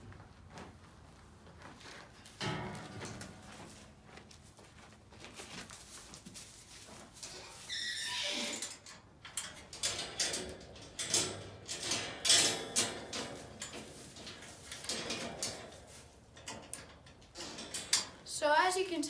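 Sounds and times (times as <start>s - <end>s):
goat scuffling and scraping: 0.0s - 7.9s, 12.9s - 17.6s.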